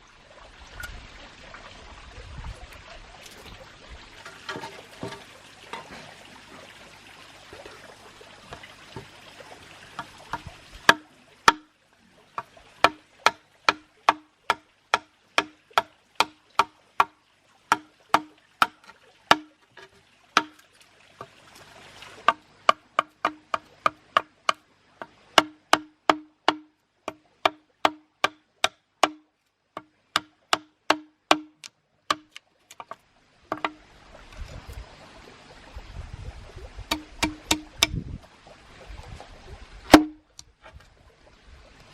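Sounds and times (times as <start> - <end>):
sharp knocks on wood: 25.4 - 29.2, 29.8 - 33.8, 36.9 - 38.0.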